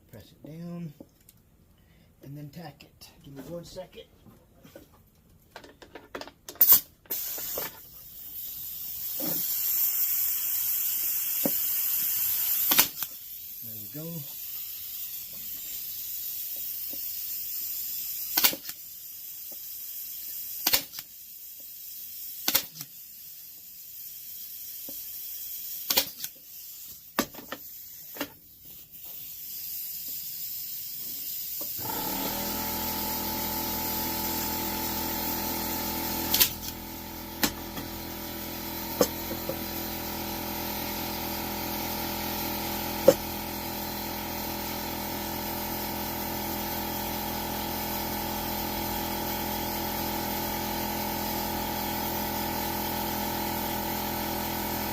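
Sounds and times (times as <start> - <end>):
staple gun snapping: 20.7 - 21.0, 36.3 - 36.8.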